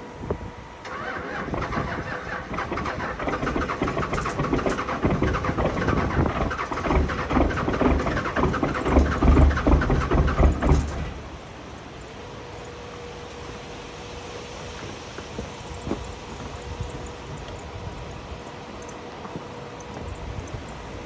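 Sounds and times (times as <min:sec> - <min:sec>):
diesel engine cranking on starter: 0:00.8 - 0:12.0.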